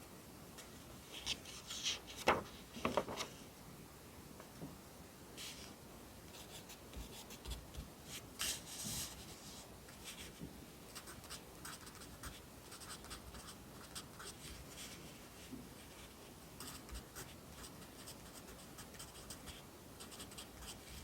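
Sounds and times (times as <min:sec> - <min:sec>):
pencil writing on paper: 0:11.0 - 0:14.4, 0:16.6 - 0:21.0.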